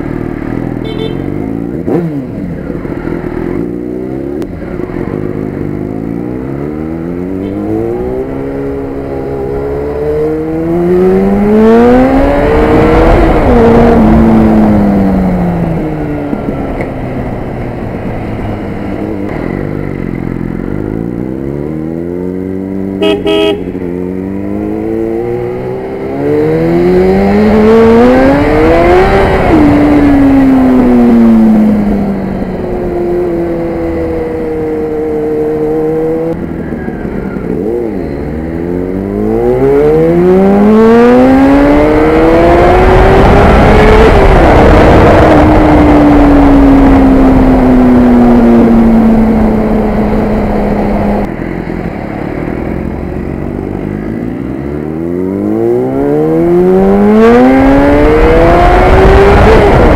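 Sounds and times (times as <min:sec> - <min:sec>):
motorcycle engine accelerating: 0:00.0 - 0:59.9
car horn toots: 0:00.8 - 0:01.4, 0:23.0 - 0:23.8.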